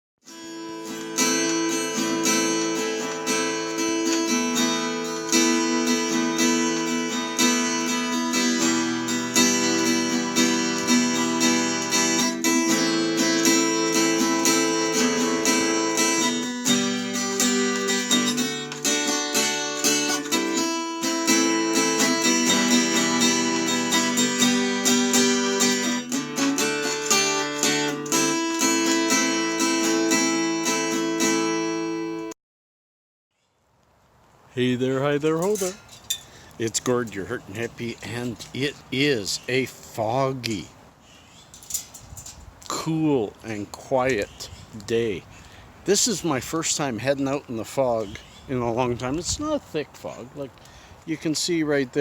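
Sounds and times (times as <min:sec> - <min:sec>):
acoustic guitar strumming: 0:00.2 - 0:32.4.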